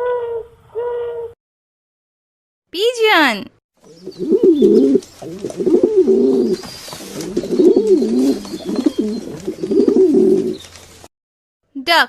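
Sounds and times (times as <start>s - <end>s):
pigeon cooing: 0.0s - 1.4s, 3.8s - 10.7s.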